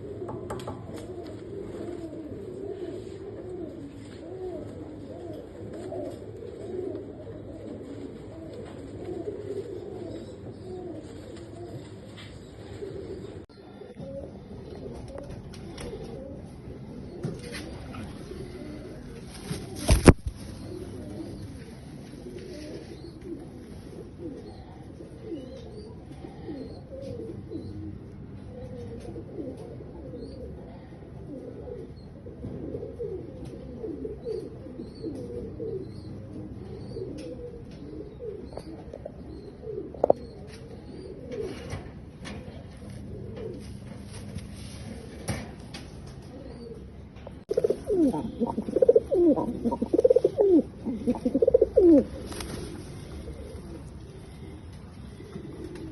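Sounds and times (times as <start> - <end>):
pigeons cooing: 0.0 - 55.9.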